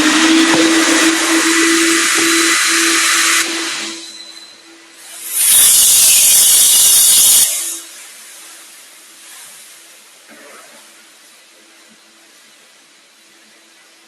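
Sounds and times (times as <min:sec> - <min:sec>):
faint steady hum: 0:07.6 - 0:14.0.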